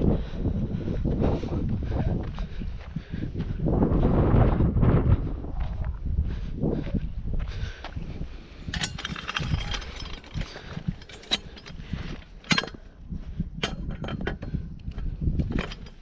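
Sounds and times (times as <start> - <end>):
low rumble: 0.0 - 16.0
sharp clicks and knocks: 8.7 - 12.9, 13.6 - 16.0.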